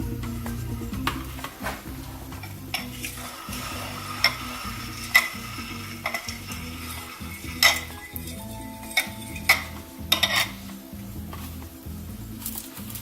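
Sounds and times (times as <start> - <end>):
fork stirring liquid: 2.7 - 10.7
faint hiss of dissolving lye: 2.7 - 10.8
metal fork clinking container: 4.1 - 10.7.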